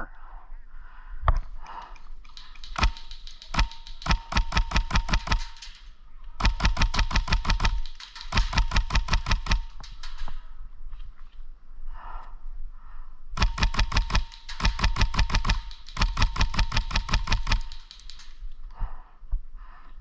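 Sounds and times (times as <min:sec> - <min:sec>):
airsoft gun shots: 0:02.3 - 0:05.8, 0:06.4 - 0:10.2, 0:13.4 - 0:18.3.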